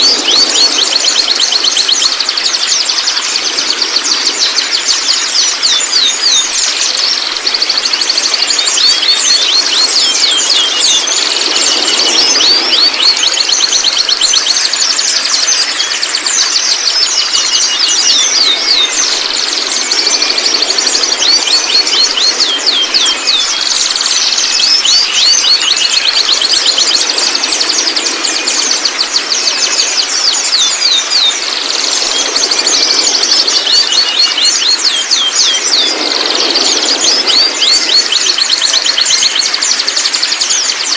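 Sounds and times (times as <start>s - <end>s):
birds chirping rapidly: 0.0s - 40.9s.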